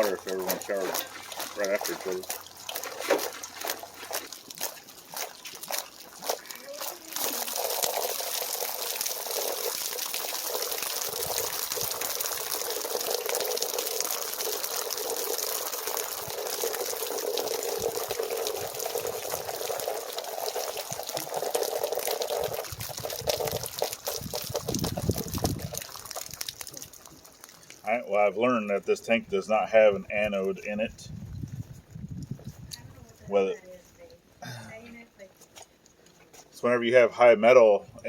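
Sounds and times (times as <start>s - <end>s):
water gushing from tank drain: 0.0s - 29.7s.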